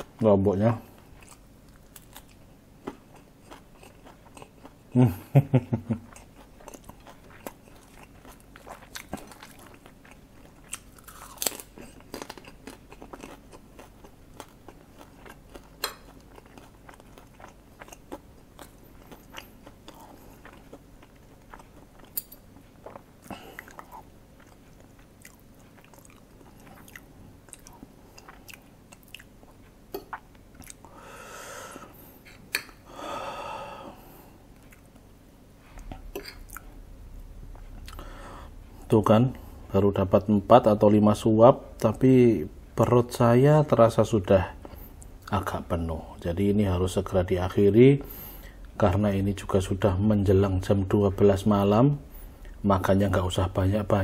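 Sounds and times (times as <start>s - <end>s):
person chewing and crunching: 0.8s - 30.9s, 34.5s - 36.8s, 37.5s - 38.8s.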